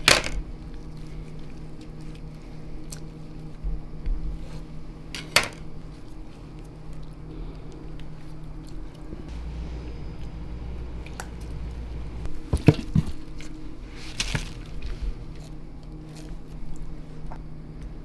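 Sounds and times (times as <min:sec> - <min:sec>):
steady hum: 0:00.0 - 0:18.0
wet scraping handling sound: 0:12.6 - 0:17.3.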